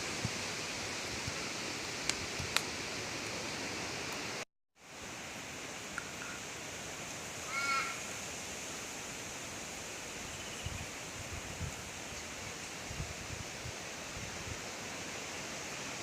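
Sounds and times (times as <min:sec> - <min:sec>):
steady outdoor hiss: 0:00.0 - 0:16.0
bird calling: 0:07.4 - 0:08.0.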